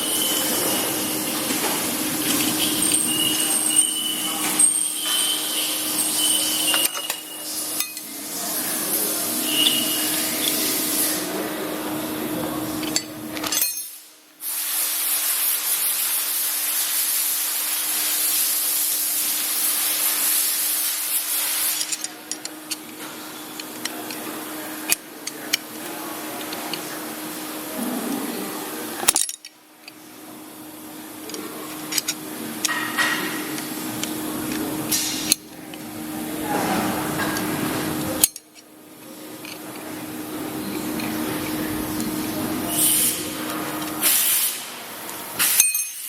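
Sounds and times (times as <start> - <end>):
grinding machine spindle humming: 0.0 - 13.4, 29.9 - 44.1.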